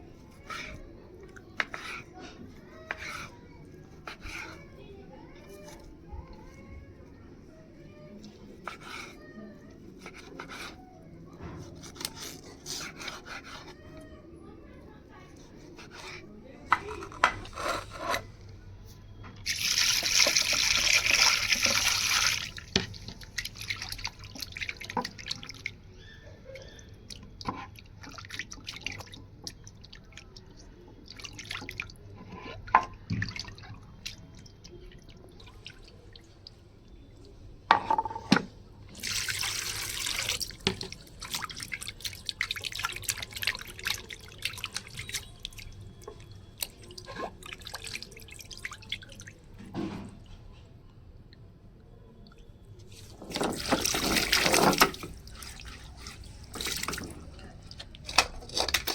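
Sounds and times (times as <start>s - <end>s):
water running from a tap: 19.4s - 25.4s, 39.0s - 46.8s, 53.2s - 57.2s.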